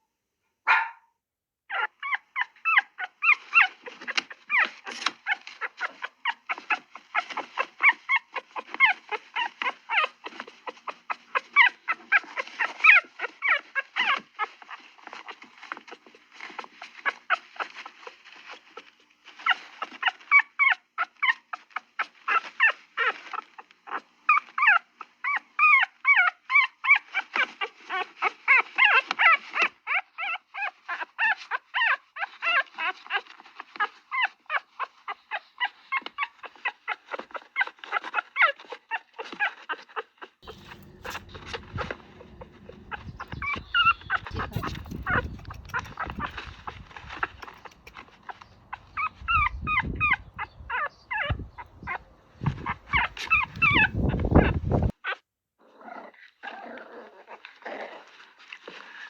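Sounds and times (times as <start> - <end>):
dog whimpering and yipping: 1.7 - 16.0, 18.4 - 54.9
low steady background noise: 40.4 - 49.4.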